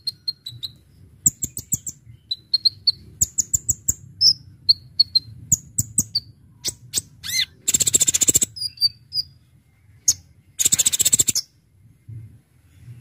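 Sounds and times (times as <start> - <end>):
sunbird singing: 0.0 - 11.6.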